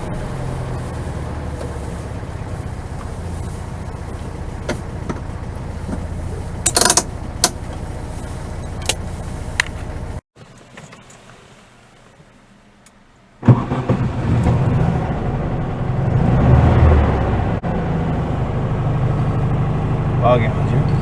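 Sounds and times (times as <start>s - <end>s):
sharp clicks and rattles: 0.0s - 11.2s
car engine droning: 0.0s - 21.0s.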